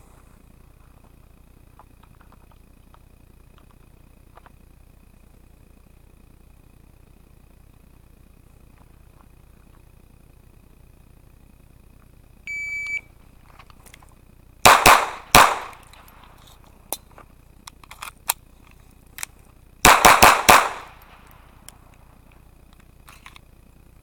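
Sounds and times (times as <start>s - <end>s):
shot timer beep: 12.5s - 13.1s
pistol shots: 14.6s - 16.4s, 19.8s - 21.7s.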